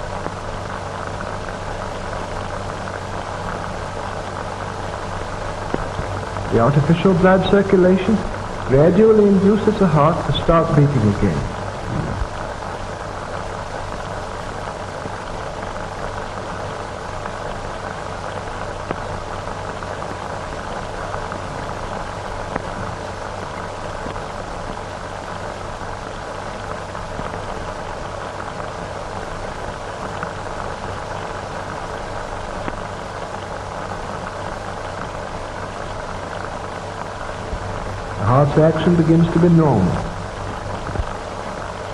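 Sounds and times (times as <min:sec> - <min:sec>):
film soundtrack hiss: 0:00.0 - 0:41.9
faint clicks and crackles: 0:32.6 - 0:33.0.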